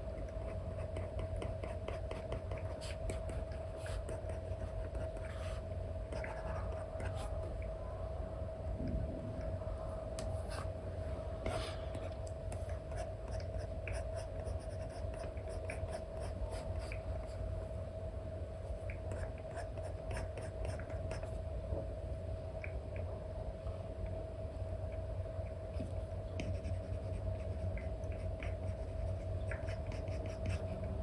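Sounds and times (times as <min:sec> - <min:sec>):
faint hum: 0:00.0 - 0:31.0
stylus scratching and tapping screen: 0:00.4 - 0:07.5, 0:25.8 - 0:30.8.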